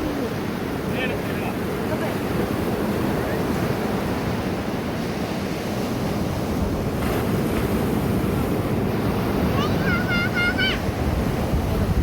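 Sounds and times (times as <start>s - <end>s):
sea surf washing on beach: 0.0s - 12.0s
wind on microphone: 0.0s - 12.0s.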